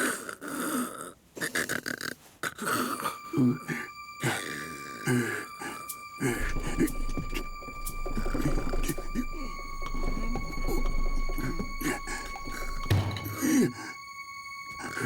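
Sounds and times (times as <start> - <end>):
steady high tone: 3.0 - 15.0.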